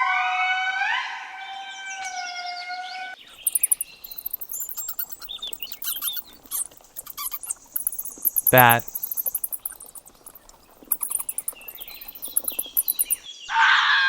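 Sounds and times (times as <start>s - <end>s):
rapid high chirps and clicks: 3.3s - 13.3s
lemur wailing calls: 3.4s - 13.2s.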